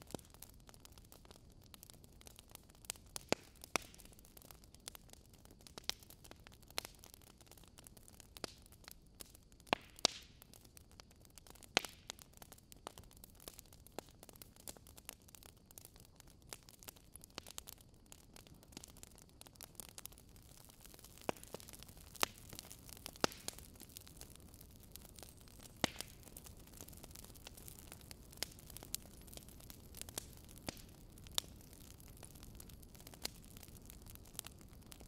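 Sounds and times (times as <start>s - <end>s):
faint steady hiss: 0.0s - 35.0s
wood fire crackling and popping: 0.0s - 35.0s.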